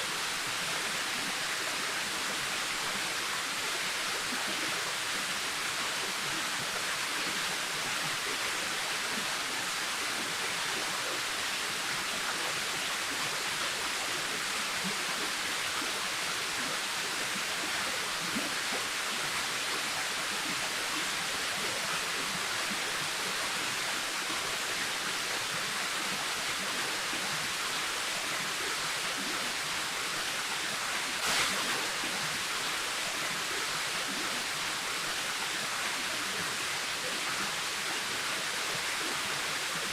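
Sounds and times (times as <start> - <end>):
waterfall rushing: 31.0 - 33.2.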